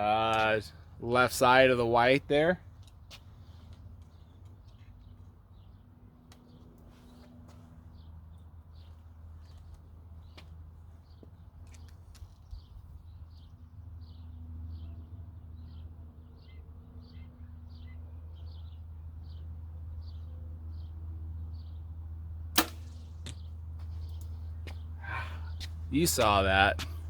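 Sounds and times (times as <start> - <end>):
bird chirping: 7.9 - 21.8
arrow hitting target: 22.6 - 23.5.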